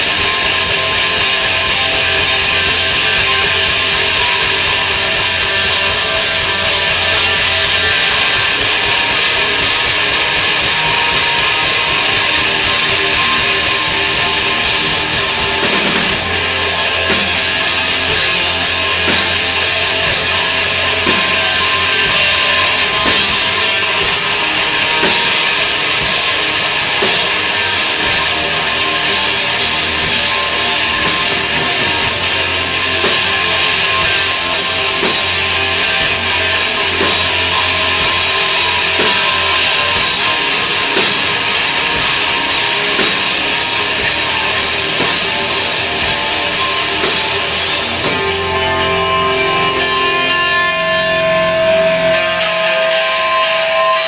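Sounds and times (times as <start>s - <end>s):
distorted electric guitars: 0.0s - 54.0s
drum kit: 0.0s - 54.0s
heavy rock music: 0.0s - 54.0s.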